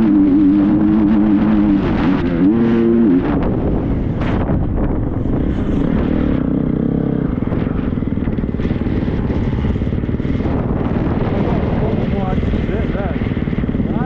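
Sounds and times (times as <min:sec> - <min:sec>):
motocross bike engine running: 0:00.0 - 0:14.0.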